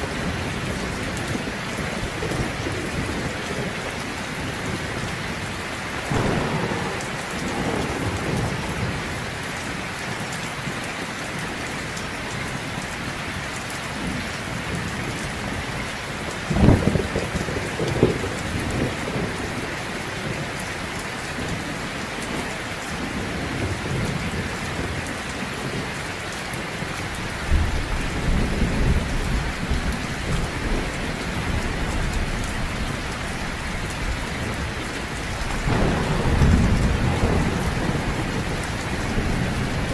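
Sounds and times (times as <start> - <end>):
low rolling thunder: 0.0 - 11.0, 14.0 - 39.9
heavy rain falling: 0.0 - 39.9
thunder crack: 6.0 - 9.8, 16.5 - 19.5, 34.1 - 39.9.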